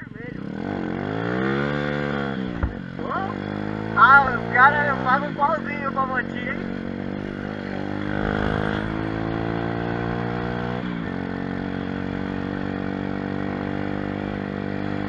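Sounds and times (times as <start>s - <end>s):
motorbike engine revving: 0.0s - 15.0s.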